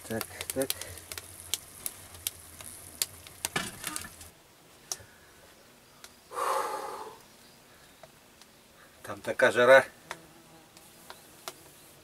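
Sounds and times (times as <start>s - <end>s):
meat sizzling in a pan: 0.0s - 4.3s.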